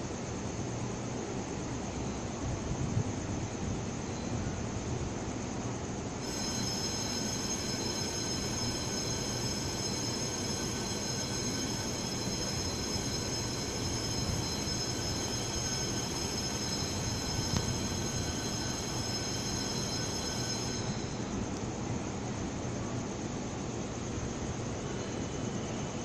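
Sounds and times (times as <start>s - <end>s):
train rumble and hiss: 0.0s - 26.0s
high-pitched electrical whines: 6.2s - 22.1s.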